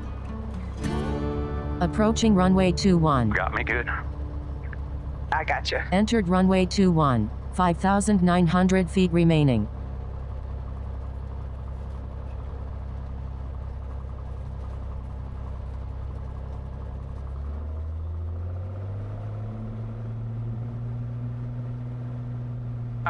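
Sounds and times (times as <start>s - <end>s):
propeller aircraft engine running: 0.0s - 23.0s.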